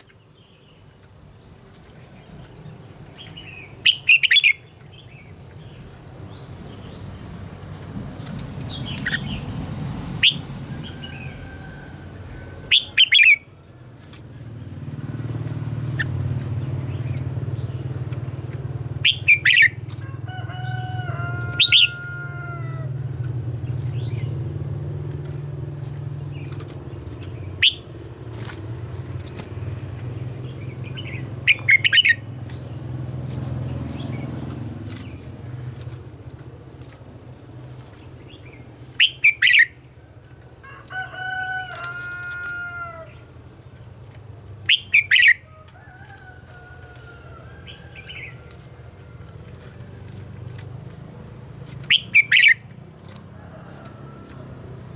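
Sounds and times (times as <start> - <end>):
bird singing sharp phrases: 0.0 - 11.5, 12.4 - 24.5, 25.1 - 33.0, 38.0 - 39.8, 42.2 - 45.6, 49.6 - 52.8.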